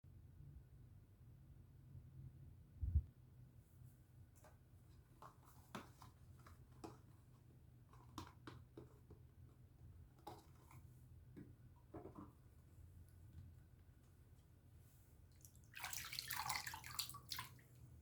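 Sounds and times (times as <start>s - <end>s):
low steady hum: 0.1s - 4.5s
soap handling clicks and rustles: 4.4s - 12.4s.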